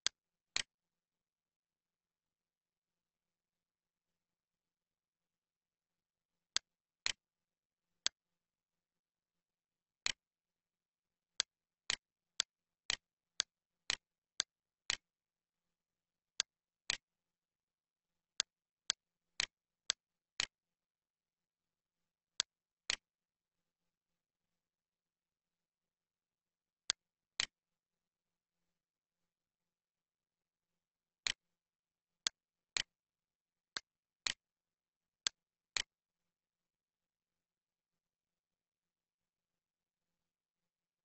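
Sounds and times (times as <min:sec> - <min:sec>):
computer mouse clicks: 0:00.0 - 0:00.7, 0:35.2 - 0:35.9.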